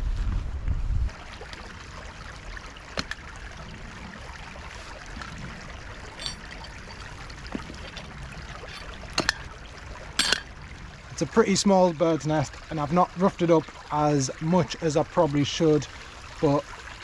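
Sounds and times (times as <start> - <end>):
wind rumble on microphone: 0.0 - 11.3
stream trickling: 1.1 - 17.0.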